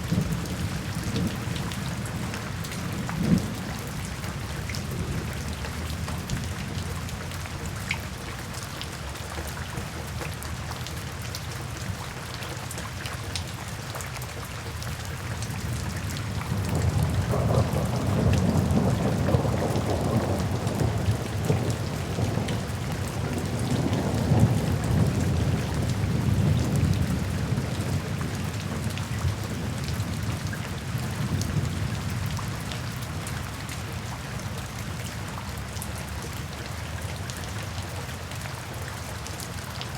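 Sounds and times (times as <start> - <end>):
rain drops ticking: 0.0 - 39.9
steady rain falling: 0.0 - 39.9
thunder rumbling: 16.3 - 28.9.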